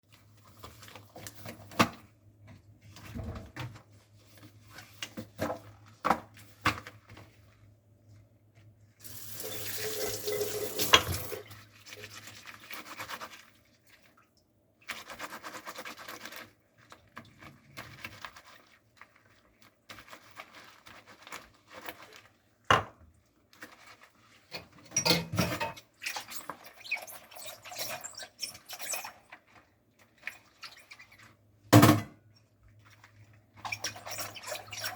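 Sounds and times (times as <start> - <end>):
dishes clinking: 24.9 - 25.8.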